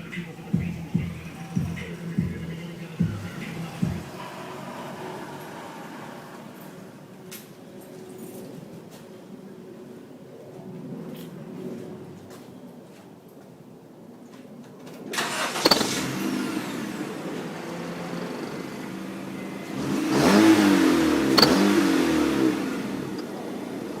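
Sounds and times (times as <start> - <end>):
car engine revving: 0.0 - 7.0, 15.2 - 24.0
car engine starting: 0.0 - 7.3, 15.1 - 24.0.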